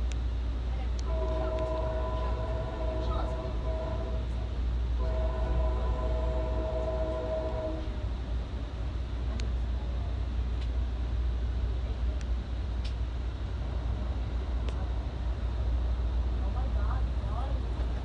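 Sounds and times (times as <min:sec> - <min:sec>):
train rumbling: 0:00.0 - 0:18.0
locomotive horn chord: 0:01.0 - 0:04.4, 0:05.0 - 0:08.0.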